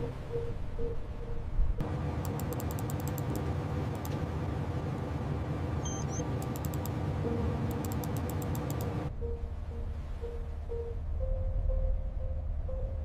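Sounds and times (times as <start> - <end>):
rapid clicking: 2.2 - 4.2, 6.4 - 7.0, 7.7 - 9.0.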